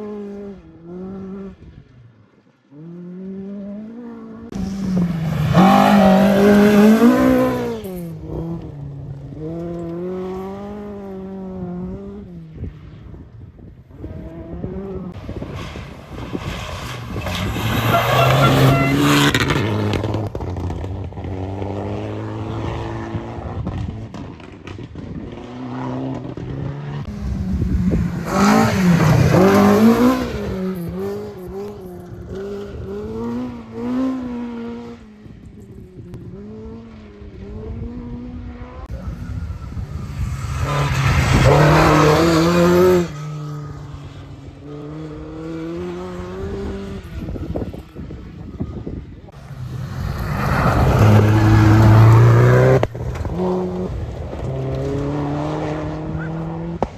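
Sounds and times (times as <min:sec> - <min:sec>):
rally car engine revving: 0:02.8 - 0:12.3, 0:14.0 - 0:35.0, 0:36.2 - 0:48.6, 0:49.3 - 0:56.9.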